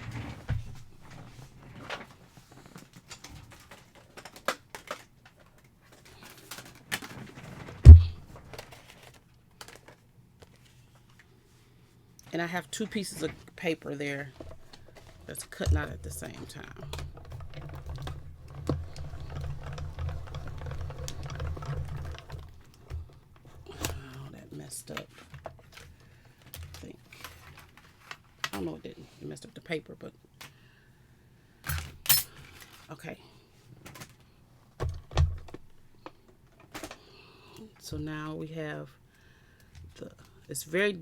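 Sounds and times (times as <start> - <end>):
rapid clicking of rollers: 14.4 - 23.7.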